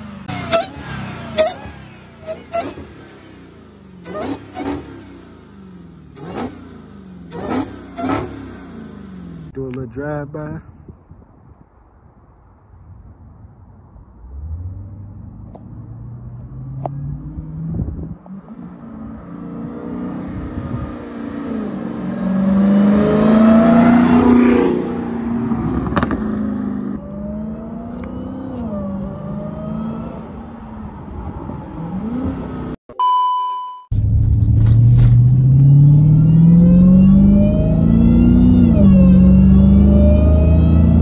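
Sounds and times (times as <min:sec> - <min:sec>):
car engine accelerating hard: 0:00.0 - 0:09.5, 0:14.2 - 0:32.8, 0:33.9 - 0:41.0
short electronic beep: 0:32.9 - 0:33.9.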